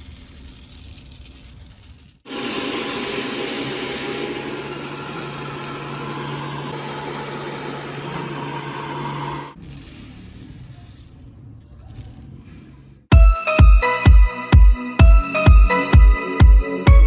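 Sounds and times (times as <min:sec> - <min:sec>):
vacuum cleaner motor whirring: 0:02.3 - 0:09.6.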